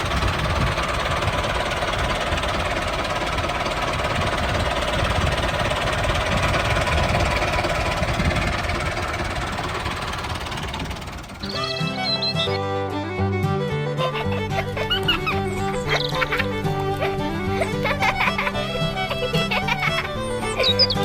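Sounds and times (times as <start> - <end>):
small tractor engine knocking: 0.0 - 12.5, 14.1 - 21.0
music: 11.4 - 21.0.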